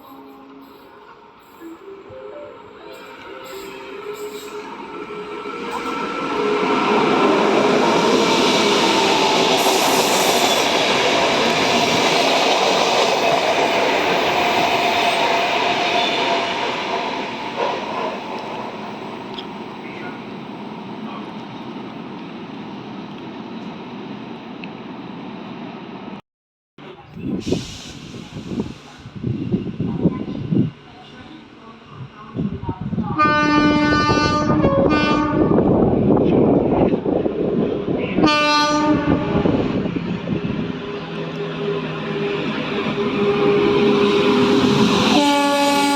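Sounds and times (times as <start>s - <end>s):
train horn blasts: 2.6s - 7.4s, 33.1s - 35.6s, 38.2s - 39.8s, 41.3s - 45.9s
train wheels rolling on track: 2.9s - 25.9s, 34.1s - 45.9s.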